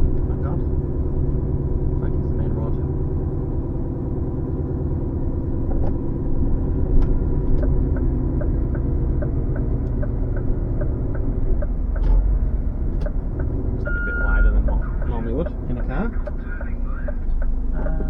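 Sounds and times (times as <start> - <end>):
lorry engine and road rumble: 0.0 - 18.0
light regular ticking: 6.6 - 13.9, 14.6 - 18.0.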